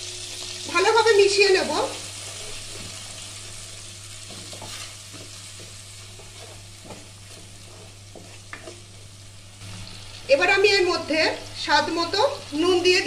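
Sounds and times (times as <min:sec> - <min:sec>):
spice paste sizzling in oil: 0:00.0 - 0:13.0
wooden spatula scraping pan: 0:02.2 - 0:09.1.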